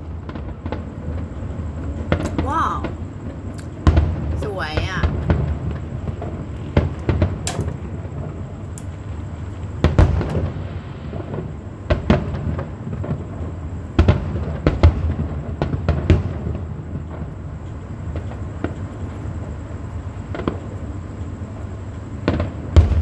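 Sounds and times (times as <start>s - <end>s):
fireworks booming: 0.1s - 17.2s.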